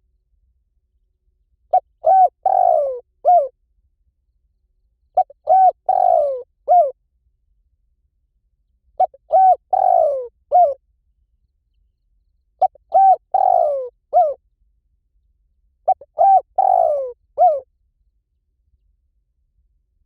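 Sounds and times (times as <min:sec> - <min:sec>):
dove cooing: 0:01.7 - 0:03.5, 0:05.2 - 0:07.0, 0:09.0 - 0:10.8, 0:12.6 - 0:14.4, 0:15.9 - 0:17.6.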